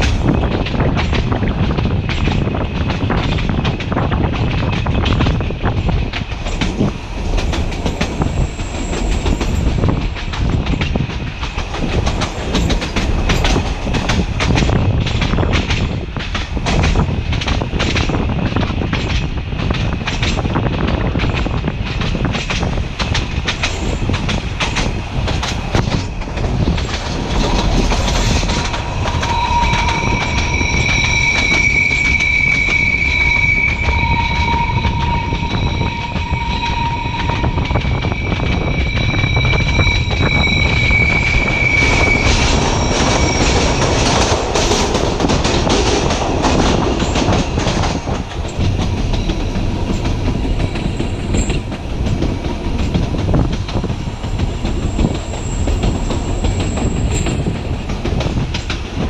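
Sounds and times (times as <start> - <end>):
wheels clacking over rail joints: 0.0 - 40.9, 41.6 - 59.0
train rumbling: 0.0 - 59.0
high-pitched wheel squeal: 27.4 - 44.6, 54.3 - 57.6.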